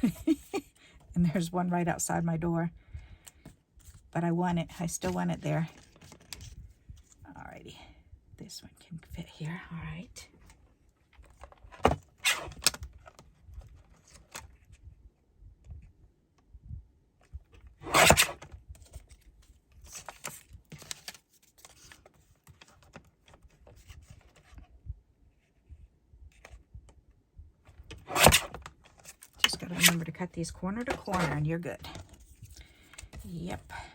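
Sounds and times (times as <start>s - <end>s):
paper rasp: 28.0s - 28.6s.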